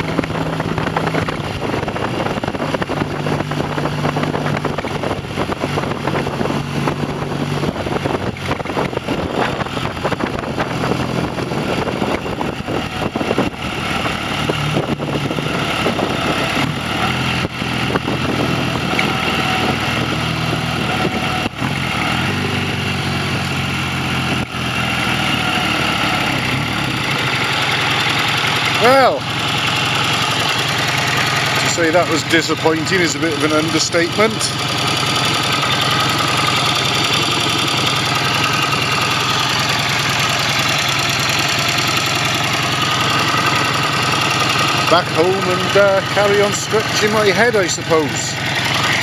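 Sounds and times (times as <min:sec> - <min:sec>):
motorcycle engine running: 0:00.0 - 0:49.0
wind and road noise: 0:00.0 - 0:49.0.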